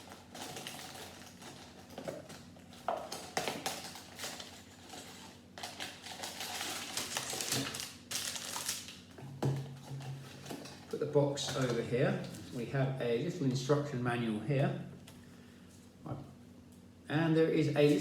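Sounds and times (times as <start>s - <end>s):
cardboard box tearing and crinkling: 3.4s - 8.9s.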